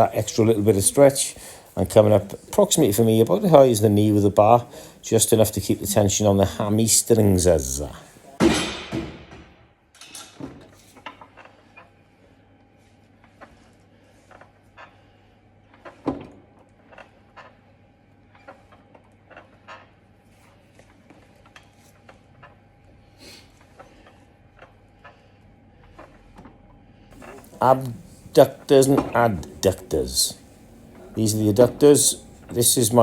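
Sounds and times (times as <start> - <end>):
faint steady hum: 0.0 - 8.4
weights clicking and knocking: 7.7 - 12.0, 13.2 - 25.2, 25.8 - 33.0.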